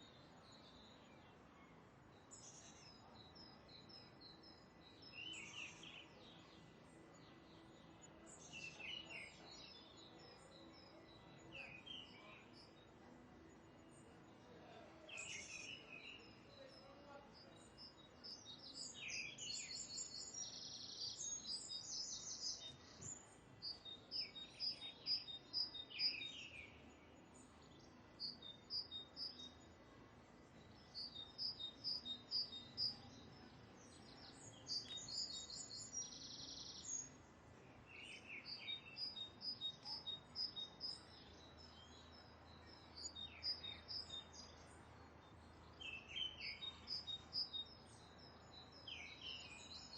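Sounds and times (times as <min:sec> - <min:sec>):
faint background hiss: 0:00.0 - 0:49.9
birds chirping: 0:30.6 - 0:37.2, 0:37.9 - 0:49.9.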